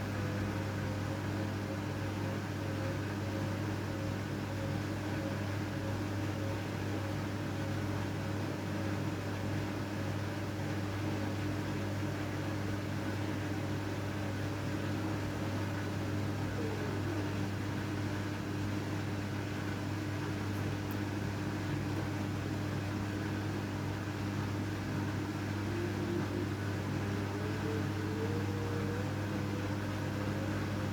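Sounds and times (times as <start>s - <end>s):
washing machine motor hum: 0.0s - 30.9s.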